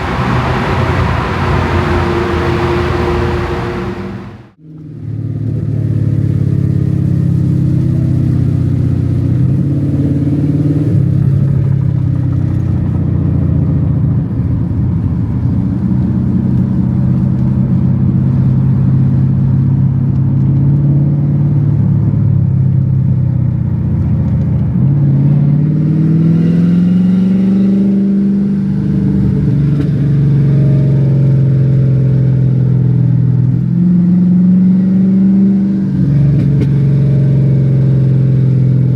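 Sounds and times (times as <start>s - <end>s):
car engine revving: 0.0s - 4.6s.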